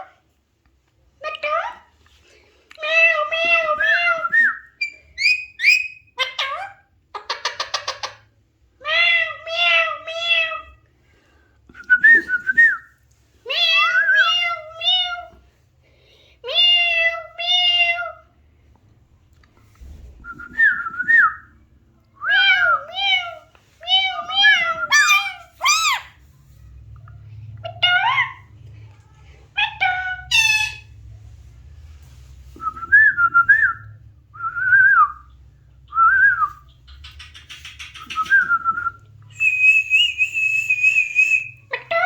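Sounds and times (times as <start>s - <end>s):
parakeet calling and whistling: 24.0s - 26.1s.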